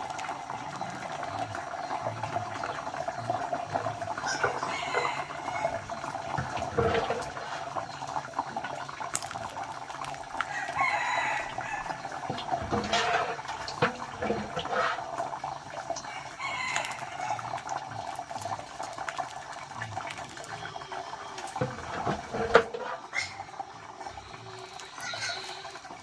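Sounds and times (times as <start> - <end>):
chickens clucking: 0.0 - 26.0
knocks and clatter of work: 3.6 - 9.2, 12.0 - 15.2, 21.5 - 23.1.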